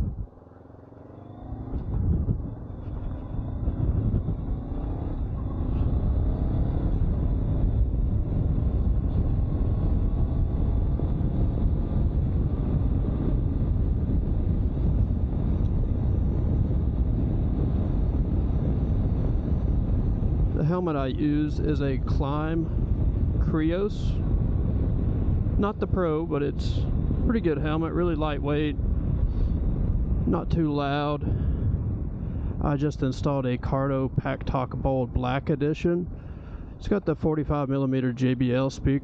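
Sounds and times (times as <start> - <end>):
wind noise on microphone: 0.0 - 0.4, 1.4 - 39.0
motorcycle engine accelerating: 0.0 - 20.3.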